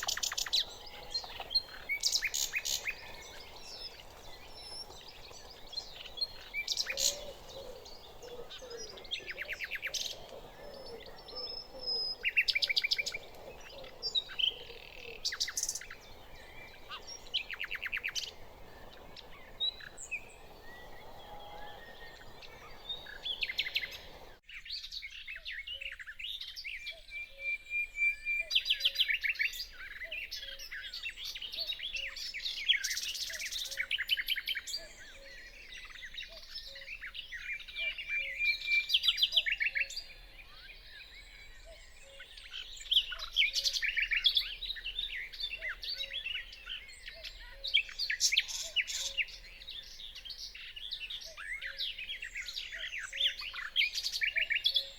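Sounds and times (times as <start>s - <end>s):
low background hiss: 0.0s - 24.4s
nightingale singing: 0.0s - 24.4s.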